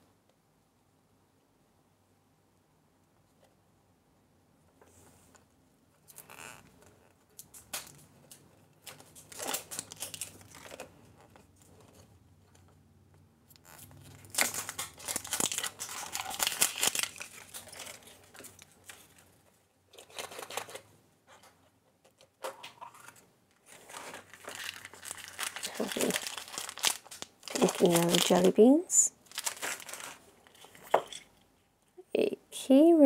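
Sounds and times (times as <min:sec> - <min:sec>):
packaging tearing and crinkling: 0:08.8 - 0:10.9, 0:13.6 - 0:19.2, 0:20.0 - 0:20.8, 0:23.0 - 0:28.6, 0:29.2 - 0:30.8.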